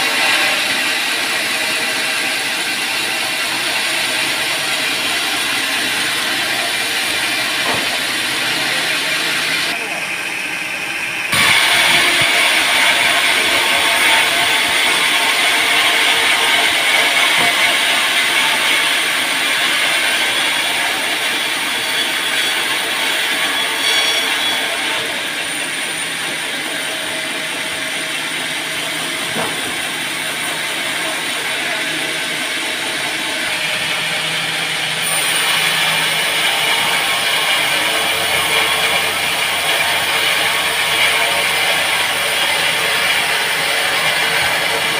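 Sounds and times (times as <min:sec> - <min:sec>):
band saw cutting log: 0:00.0 - 0:09.9, 0:11.2 - 0:44.9.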